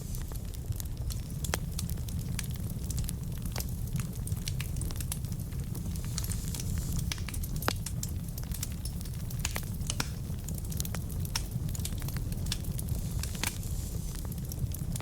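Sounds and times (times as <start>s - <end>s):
fire crackling with sharp pops: 0.0s - 15.0s
logs burning low rumble: 0.0s - 15.0s.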